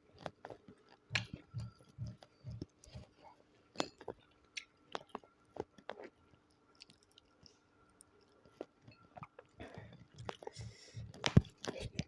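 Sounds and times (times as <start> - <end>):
chewing and wet mouth clicks: 0.1 - 12.0.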